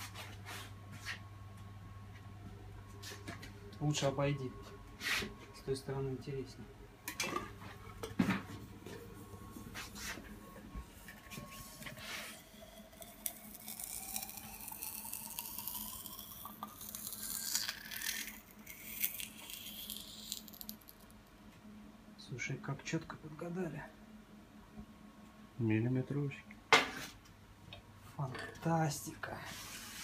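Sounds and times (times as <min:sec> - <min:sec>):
tone rising in pitch: 0:11.3 - 0:17.0.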